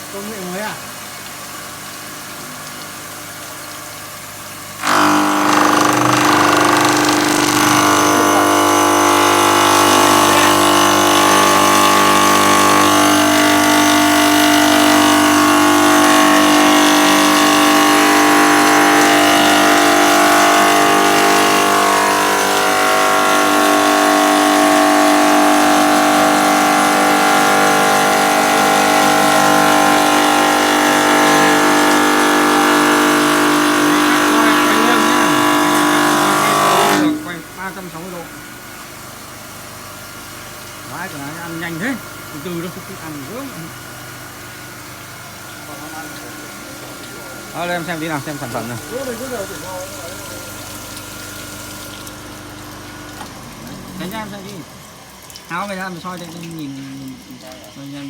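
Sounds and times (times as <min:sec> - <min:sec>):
router grinding into stone: 0:04.8 - 0:38.3.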